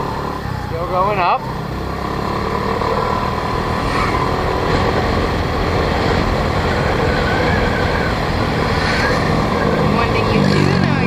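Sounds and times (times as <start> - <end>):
rushing ride noise: 3.9 - 11.0.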